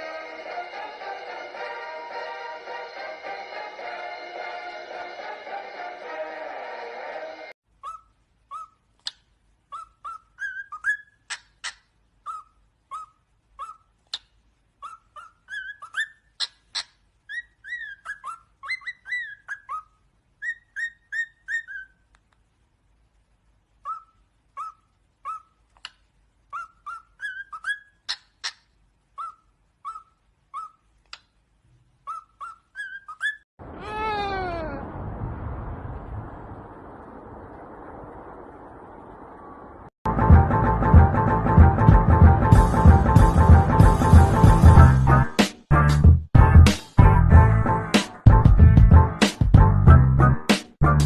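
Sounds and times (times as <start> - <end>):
parrot whistling chirps: 7.8 - 22.1, 23.8 - 31.3, 32.0 - 33.4.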